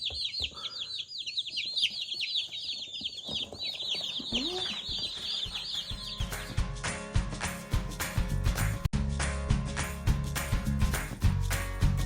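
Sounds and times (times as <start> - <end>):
chicks peeping: 0.0 - 6.7.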